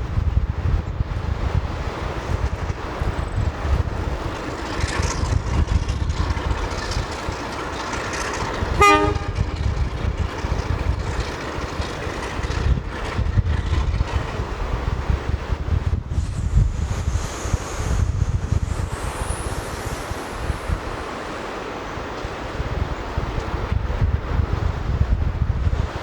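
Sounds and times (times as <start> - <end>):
low rumble: 0.0 - 26.0
wind buffeting microphone: 0.0 - 26.0
train whistle toot: 8.7 - 9.6.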